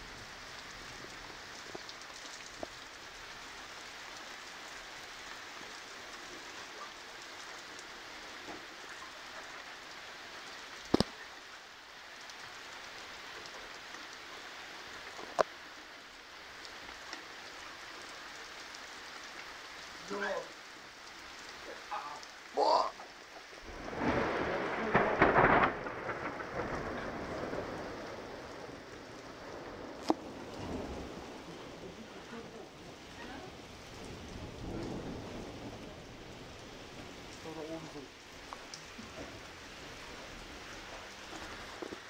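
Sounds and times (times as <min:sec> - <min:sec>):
heavy rain hissing: 0:00.0 - 0:42.0.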